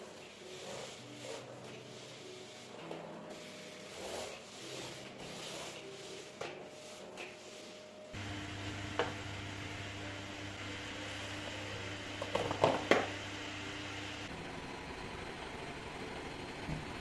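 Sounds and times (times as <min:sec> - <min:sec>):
appliance motor humming: 0:08.2 - 0:14.5.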